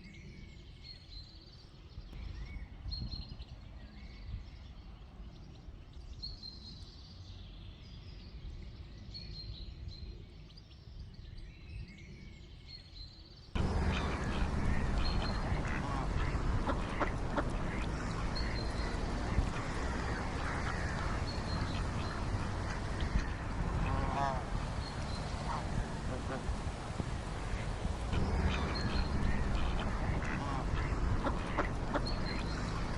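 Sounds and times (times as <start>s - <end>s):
small birds chirping: 0.0s - 32.9s
ducks quacking: 13.6s - 32.9s.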